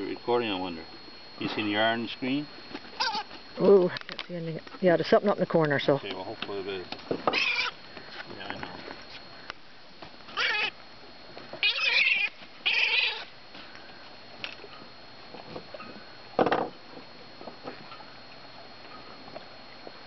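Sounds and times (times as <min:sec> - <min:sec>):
gull squawking: 0:03.0 - 0:03.3, 0:07.3 - 0:07.8, 0:10.3 - 0:10.8, 0:11.6 - 0:13.3.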